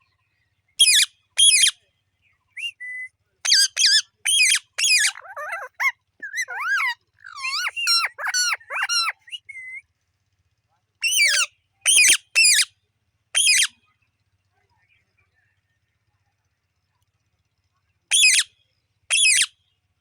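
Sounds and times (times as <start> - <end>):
parrot shrill calls and chatter: 0.8 - 1.8, 2.6 - 9.8, 11.0 - 12.7, 13.4 - 13.8, 18.1 - 18.5, 19.1 - 19.6.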